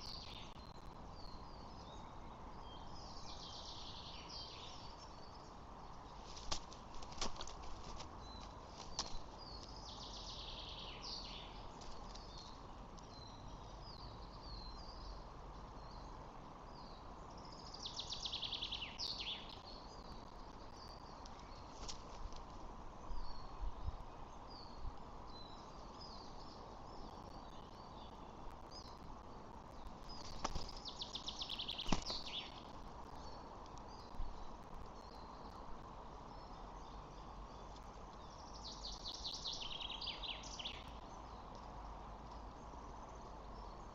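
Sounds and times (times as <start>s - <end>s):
background hiss: 0.0s - 43.9s
birds chirping: 0.0s - 43.9s
rapid high chattering bird calls: 29.9s - 34.1s.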